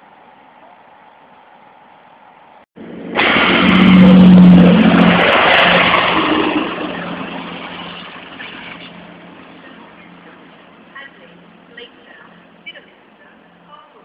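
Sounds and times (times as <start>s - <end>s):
diesel train passing at speed: 0.0s - 14.0s.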